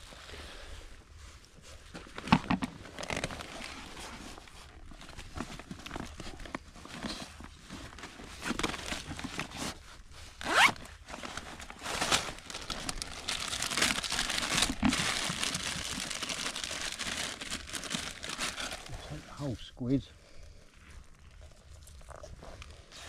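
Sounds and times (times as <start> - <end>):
plastic packaging crinkling: 2.1 - 19.0.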